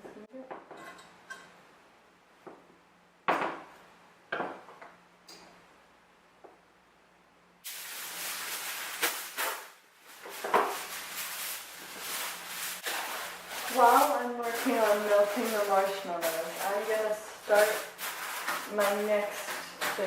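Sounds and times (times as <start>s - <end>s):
loud rushing hiss: 7.6s - 9.7s.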